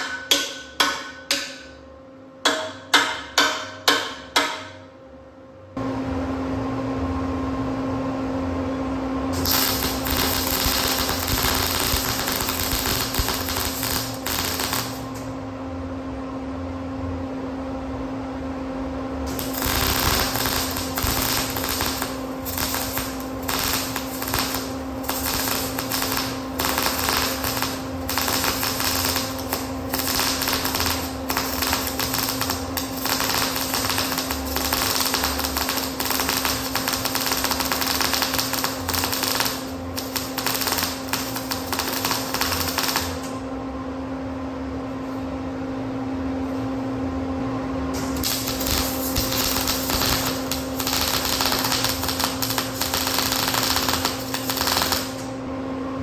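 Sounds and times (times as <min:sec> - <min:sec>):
steady low hum: 0:00.0 - 0:56.0
welding arc crackling: 0:09.4 - 0:15.3, 0:19.3 - 0:43.4, 0:48.0 - 0:55.3.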